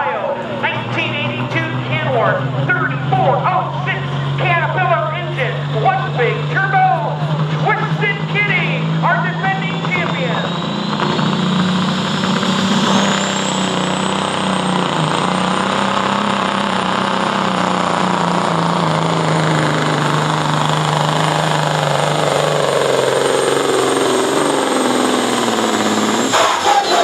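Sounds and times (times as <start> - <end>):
diesel truck engine under load: 0.0 - 27.0
turbo whistling: 8.4 - 15.4, 19.8 - 27.0.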